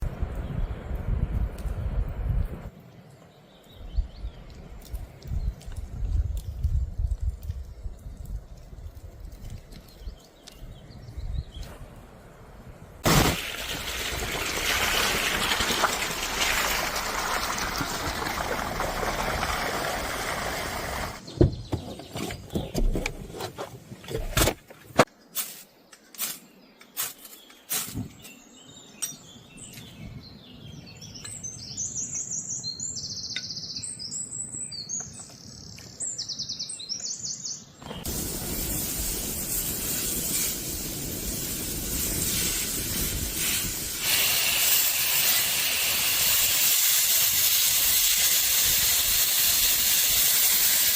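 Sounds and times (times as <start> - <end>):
birds chirping: 20.3 - 23.4, 25.1 - 38.2
loud steady hiss: 37.9 - 50.9.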